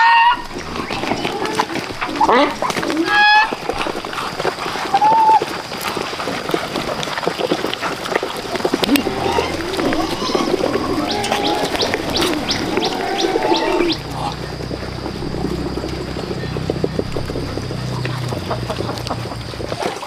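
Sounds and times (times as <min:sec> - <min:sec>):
low coo-like bird call: 0:08.8 - 0:19.2
wavering lower bird calls: 0:08.9 - 0:18.9
steady high hum: 0:08.9 - 0:19.6.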